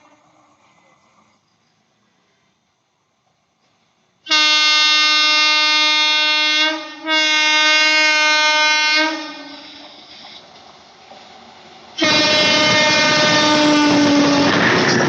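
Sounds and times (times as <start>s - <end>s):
train running noise: 0.0s - 15.0s
locomotive air horn blasts: 4.3s - 9.8s, 12.0s - 14.6s.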